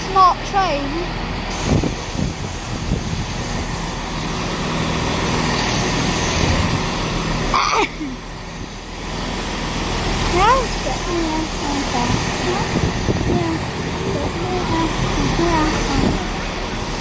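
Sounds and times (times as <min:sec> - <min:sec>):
diesel train engines idling: 0:00.0 - 0:17.0
person speaking: 0:10.3 - 0:16.4.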